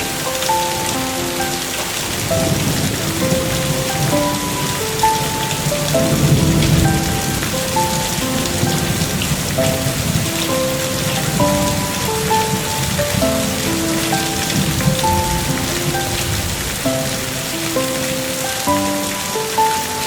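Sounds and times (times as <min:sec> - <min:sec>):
slow gentle melody: 0:00.0 - 0:20.0
steady rain falling: 0:00.0 - 0:20.0.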